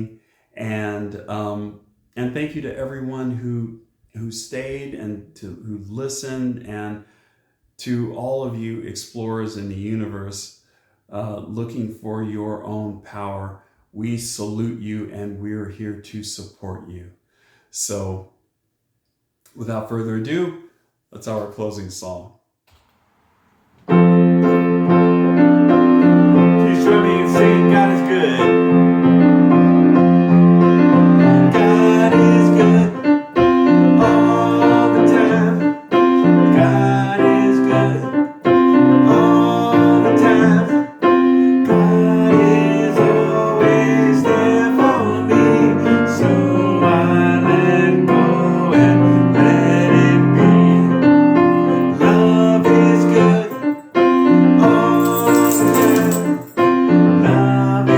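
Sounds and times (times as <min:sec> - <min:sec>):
piano chords: 0:23.8 - 0:57.9.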